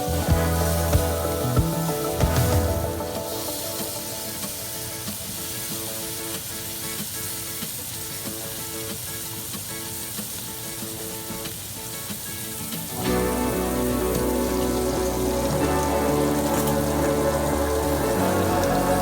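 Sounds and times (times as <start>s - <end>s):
soft background music: 0.0s - 6.2s, 12.9s - 19.0s
food sizzling in hot oil: 0.0s - 19.0s.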